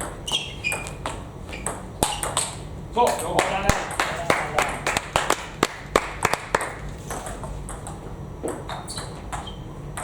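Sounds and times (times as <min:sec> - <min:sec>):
short high squeaks: 0:00.2 - 0:02.4, 0:08.8 - 0:09.8.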